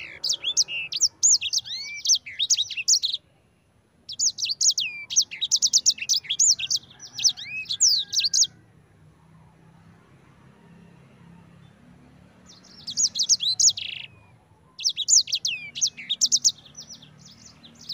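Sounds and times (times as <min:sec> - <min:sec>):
songbird singing whistled notes: 0:00.0 - 0:08.5, 0:12.5 - 0:17.9.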